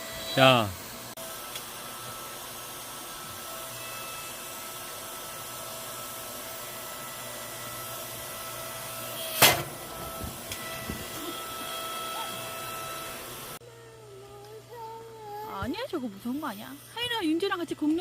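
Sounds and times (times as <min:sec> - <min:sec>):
machine motor whining: 0:06.2 - 0:13.6.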